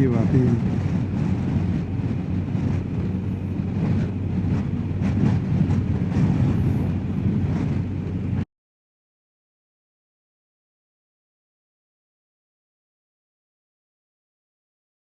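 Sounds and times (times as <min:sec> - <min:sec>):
motorcycle engine rumble: 0:00.0 - 0:08.4
wind rush: 0:00.0 - 0:08.5.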